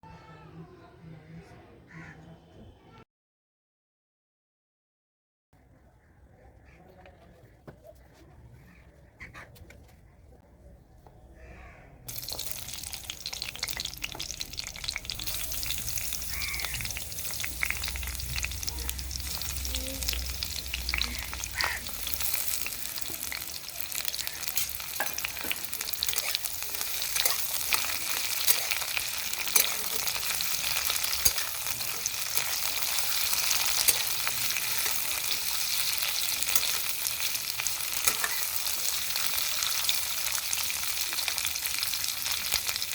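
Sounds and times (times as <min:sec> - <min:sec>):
food sizzling in hot oil: 0:12.1 - 0:42.9.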